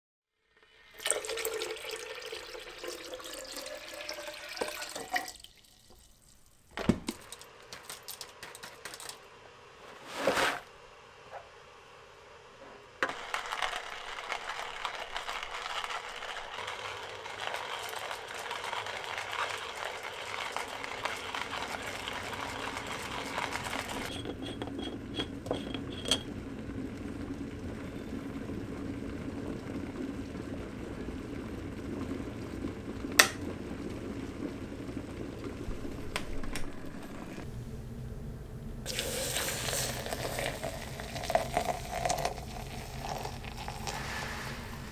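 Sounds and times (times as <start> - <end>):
tap water running into sink: 0.7 - 9.2, 13.0 - 24.1, 35.6 - 44.9.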